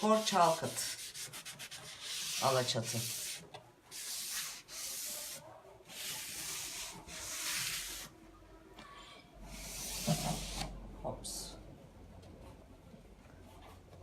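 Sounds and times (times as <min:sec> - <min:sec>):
sanding scrape on wood: 0:00.2 - 0:08.1.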